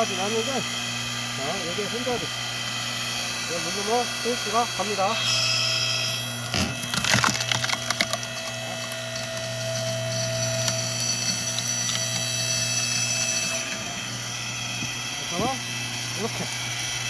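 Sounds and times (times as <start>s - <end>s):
log splitter motor humming: 0.0s - 17.0s
log cracking and splintering: 6.5s - 9.5s.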